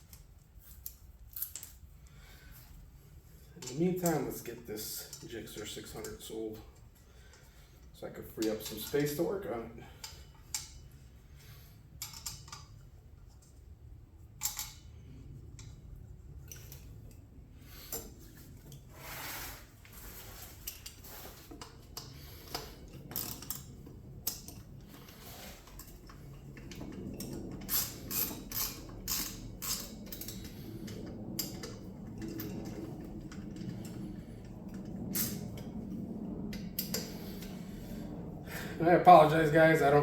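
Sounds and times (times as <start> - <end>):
metal tools clicking and clinking: 8.4 - 9.2.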